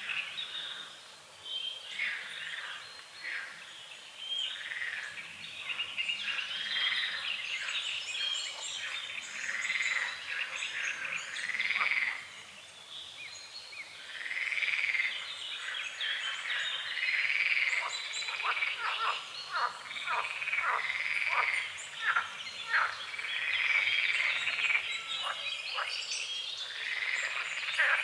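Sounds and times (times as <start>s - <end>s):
birds chirping: 0.0s - 28.0s
frogs croaking: 1.9s - 3.7s, 4.4s - 12.4s, 13.9s - 28.0s.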